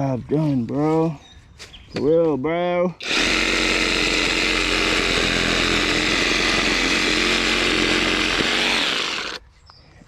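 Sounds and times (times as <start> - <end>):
reciprocating saw cutting wood: 3.0 - 9.4.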